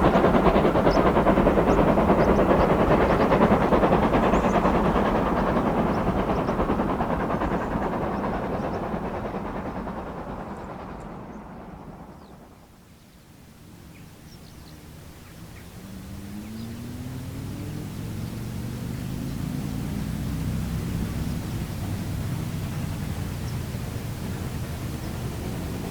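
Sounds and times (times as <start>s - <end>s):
steam train passing: 0.0s - 25.9s
vehicle hum: 15.6s - 25.9s.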